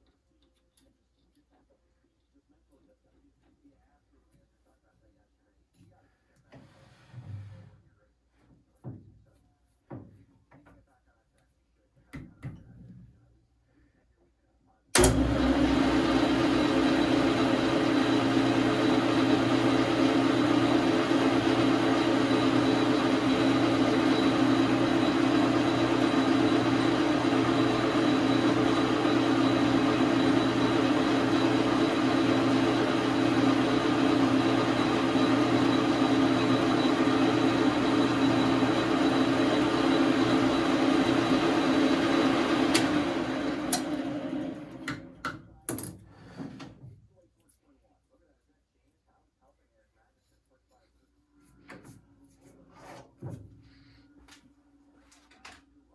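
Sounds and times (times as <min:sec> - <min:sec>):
lathe running: 0:15.0 - 0:45.3
clicks: 0:42.7 - 0:43.0.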